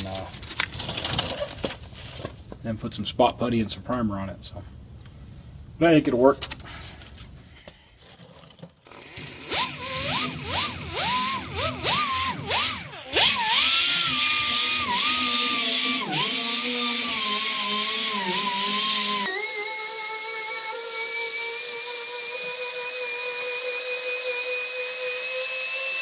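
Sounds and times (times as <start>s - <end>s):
handheld power tool spinning: 8.1s - 26.0s.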